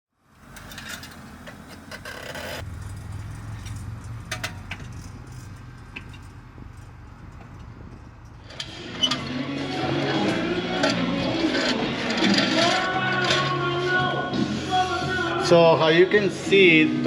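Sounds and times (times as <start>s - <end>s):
vehicle low rumble: 0.2s - 9.3s
wheel grinding metal on metal: 0.4s - 13.8s.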